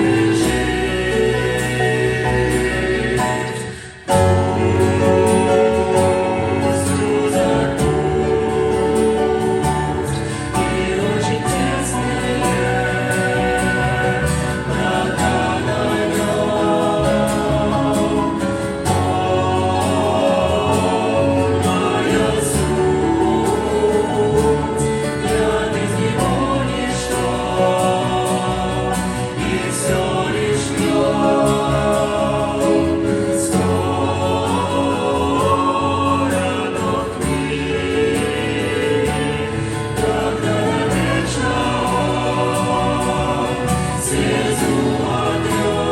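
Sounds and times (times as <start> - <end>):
choir singing: 0.0 - 45.9.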